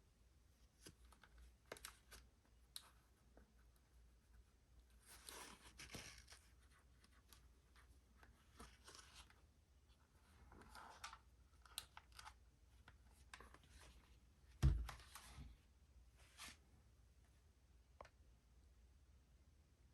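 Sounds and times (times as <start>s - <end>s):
dull thump: 14.6s - 15.0s.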